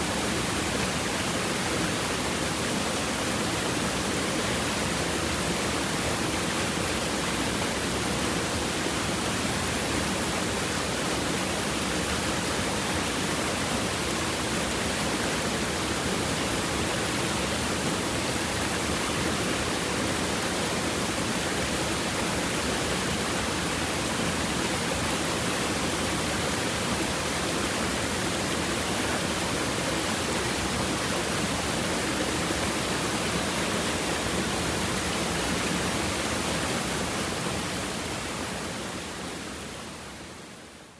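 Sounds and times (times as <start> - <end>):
stream water running over rocks: 0.0 - 39.8.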